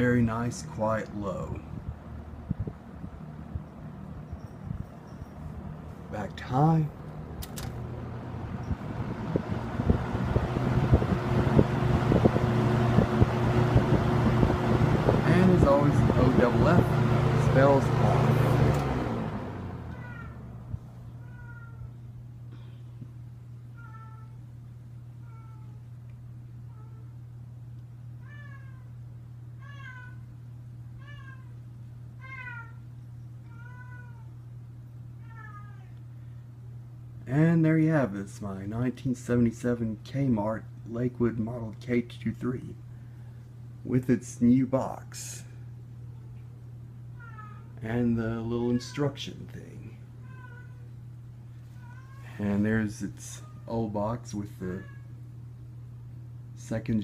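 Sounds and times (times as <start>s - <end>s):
box fan motor hum and air rush: 0.0s - 57.0s
cat meowing: 19.9s - 20.4s, 21.1s - 22.0s, 23.8s - 24.4s, 25.2s - 25.8s, 28.2s - 29.0s, 29.6s - 30.3s, 31.0s - 31.6s, 32.2s - 32.8s, 33.4s - 34.4s, 35.2s - 36.0s, 47.1s - 47.8s, 48.6s - 49.3s, 50.2s - 50.9s, 51.7s - 52.4s, 54.7s - 55.2s.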